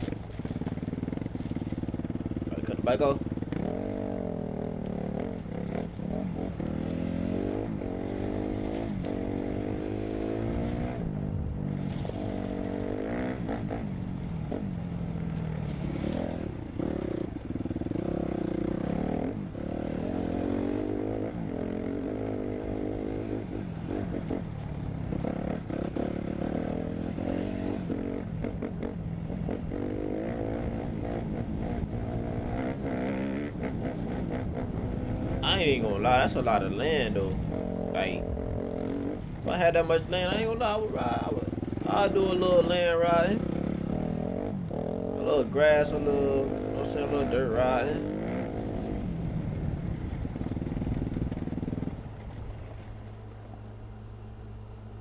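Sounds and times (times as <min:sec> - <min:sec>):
dirt bike engine revving: 0:00.0 - 0:52.1.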